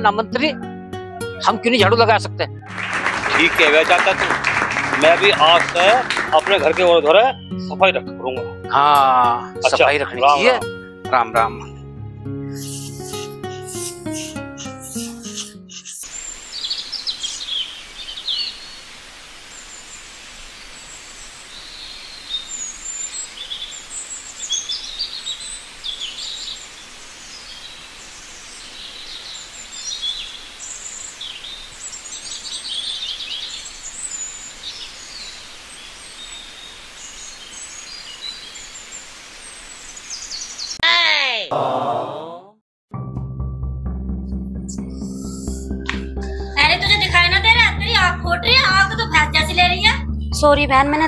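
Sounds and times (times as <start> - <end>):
birds chirping: 2.5 - 8.8, 12.4 - 40.8, 44.7 - 50.5
steady hiss: 12.6 - 15.3, 16.0 - 40.8.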